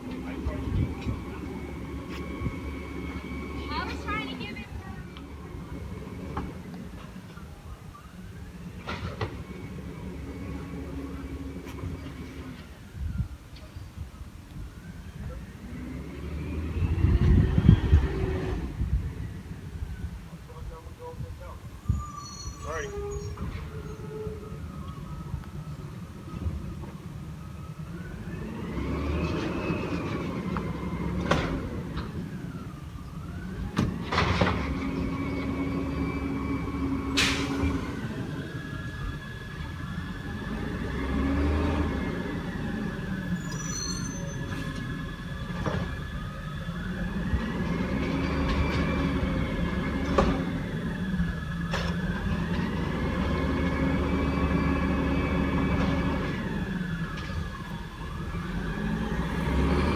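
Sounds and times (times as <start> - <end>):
garbage truck engine revving: 15.4 - 19.4, 25.9 - 59.9
hydraulics working: 20.6 - 59.9.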